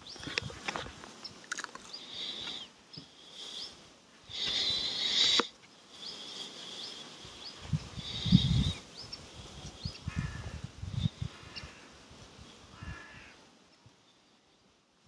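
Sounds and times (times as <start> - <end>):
small birds chirping: 0.0 - 14.8
bird warbling call: 1.2 - 11.9.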